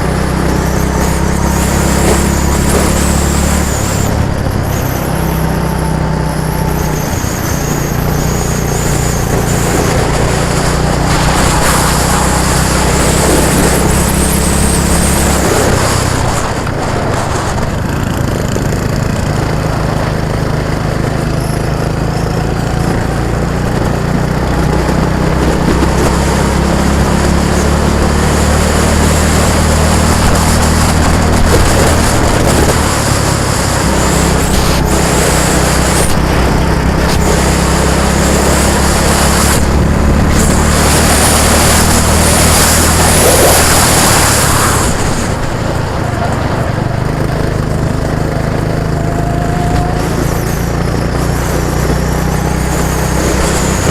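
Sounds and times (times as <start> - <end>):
vehicle engine running: 0.0 - 53.9.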